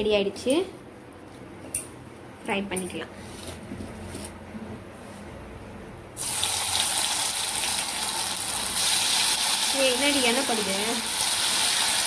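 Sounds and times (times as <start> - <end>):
food deep-frying in oil: 6.2 - 12.0.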